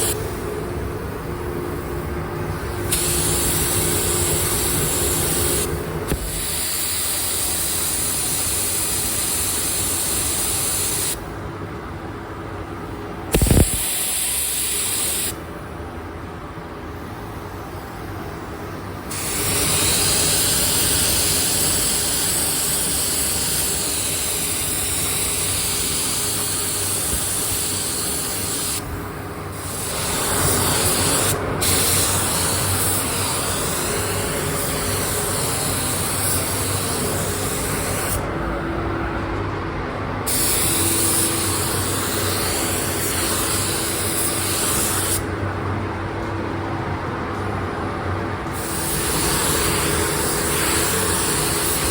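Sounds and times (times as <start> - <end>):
paint spray gun hissing: 0.0 - 0.2, 2.8 - 11.2, 13.3 - 15.4, 19.1 - 38.2, 40.3 - 45.3.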